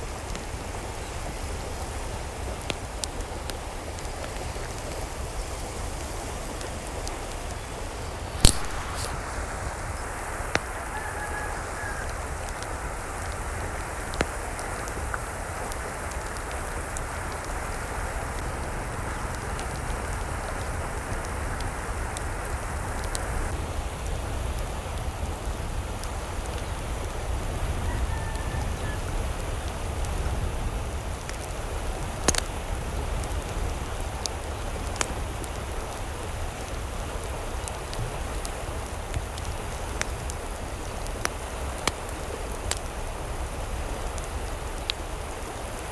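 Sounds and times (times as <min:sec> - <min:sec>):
water hissing: 0:08.4 - 0:11.9.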